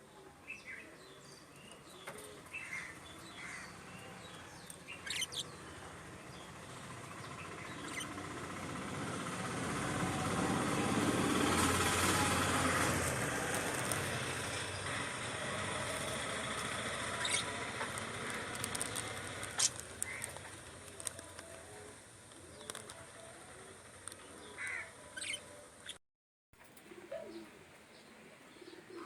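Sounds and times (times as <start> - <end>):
high bird chirps: 4.9 - 5.5
birds cooing: 26.7 - 29.0.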